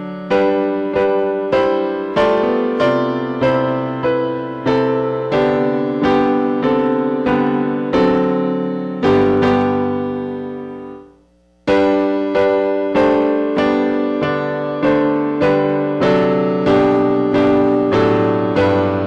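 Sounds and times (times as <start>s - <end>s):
piano playing hymn chords: 0.0s - 19.0s.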